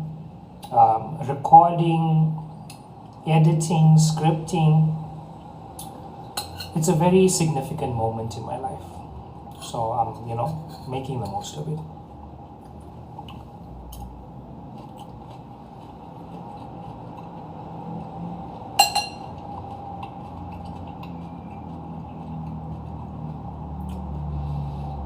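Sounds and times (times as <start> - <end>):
utensil clinking against dish: 18.8 - 19.3.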